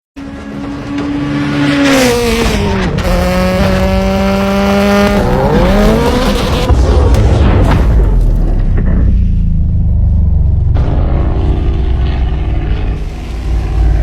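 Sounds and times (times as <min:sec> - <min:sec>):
car engine running high: 0:00.2 - 0:06.8.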